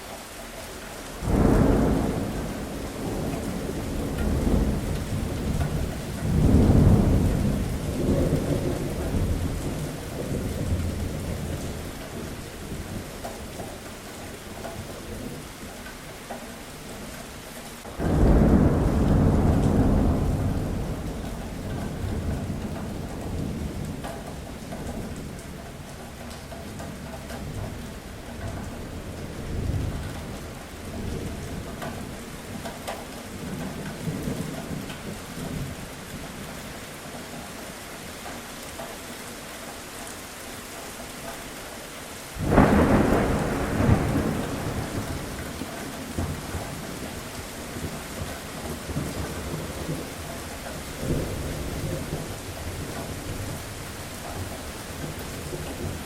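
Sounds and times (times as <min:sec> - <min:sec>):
steady rain: 0:00.0 - 0:56.0
thunderclap: 0:01.2 - 0:11.3, 0:17.8 - 0:25.3, 0:42.4 - 0:50.2
thunder rumbling: 0:01.2 - 0:13.0, 0:17.8 - 0:26.5, 0:42.4 - 0:56.0.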